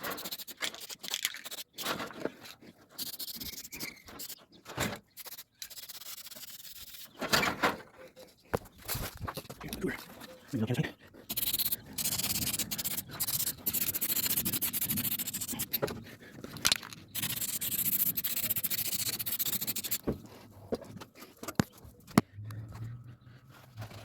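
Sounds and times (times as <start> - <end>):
hand scraping on metal parts: 0.0 - 7.6, 11.3 - 22.2.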